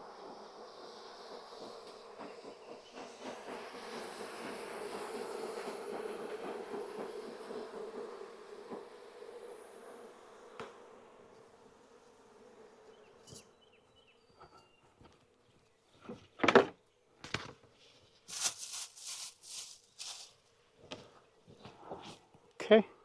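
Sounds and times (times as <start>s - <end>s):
short hissing bursts: 18.3s - 20.4s.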